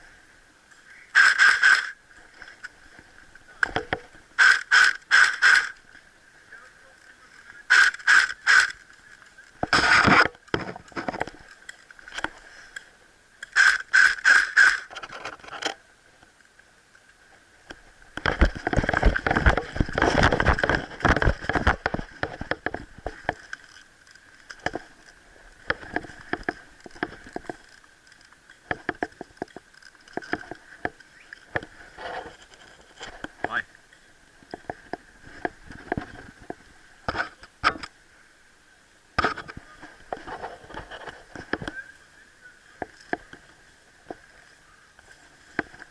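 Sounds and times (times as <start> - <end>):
rustling and scraping: 1.1 - 6.1, 6.8 - 15.8, 17.3 - 37.9, 39.2 - 41.9
airsoft rifle shots: 1.2 - 2.0, 4.4 - 5.8, 7.7 - 8.7, 13.6 - 14.9.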